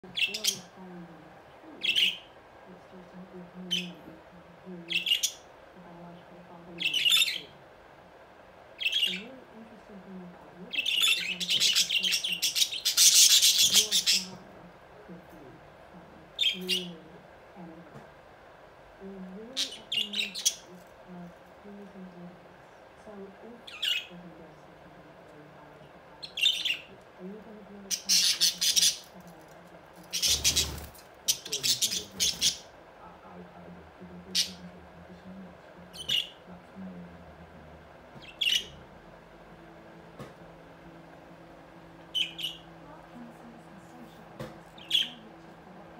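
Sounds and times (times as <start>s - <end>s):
faint steady hum: 0.0s - 45.9s
budgerigars chirping and squawking: 0.1s - 0.7s, 1.8s - 2.3s, 4.9s - 5.4s, 6.8s - 7.5s, 8.8s - 9.3s, 10.7s - 14.4s, 16.4s - 16.9s, 19.5s - 20.7s, 23.6s - 24.1s, 26.2s - 26.9s, 27.9s - 29.2s, 30.0s - 32.7s, 34.3s - 34.6s, 35.9s - 36.4s, 38.2s - 38.8s, 42.1s - 42.7s, 44.8s - 45.3s.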